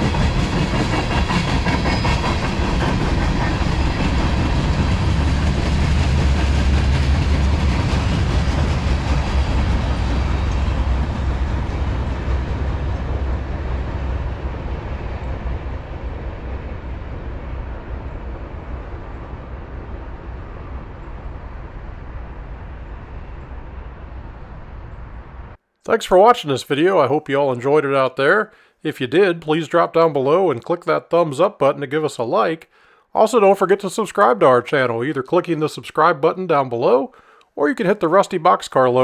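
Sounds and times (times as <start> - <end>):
freight train wheels rumbling: 0.0 - 25.6.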